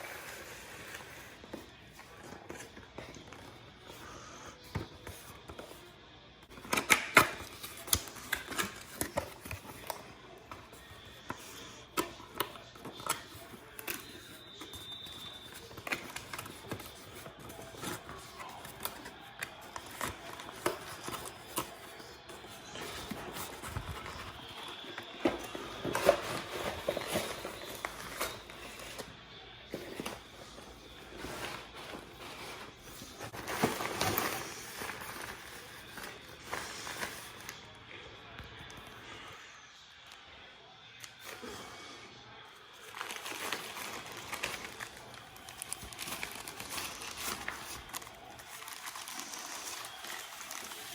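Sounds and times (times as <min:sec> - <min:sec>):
packaging rustling: 0:00.0 - 0:37.7, 0:42.7 - 0:50.9
packaging clicks and knocks: 0:06.5 - 0:29.1.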